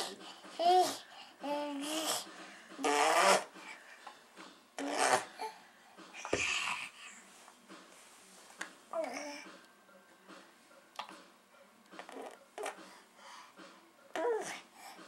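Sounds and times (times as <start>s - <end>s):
baby blowing raspberries: 1.8s - 3.8s, 4.8s - 5.6s.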